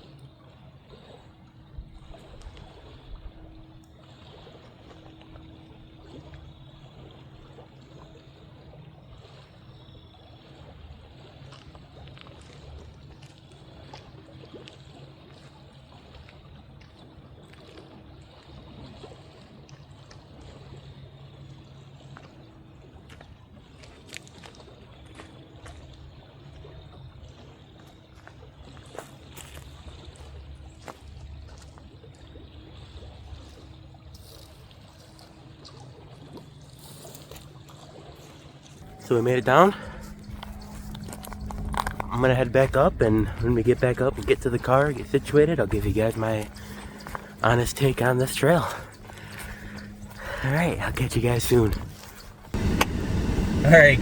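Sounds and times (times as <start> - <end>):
river water trickling over rocks: 0.0 - 52.8
low rumble: 39.7 - 54.0
small ticks: 40.0 - 42.1.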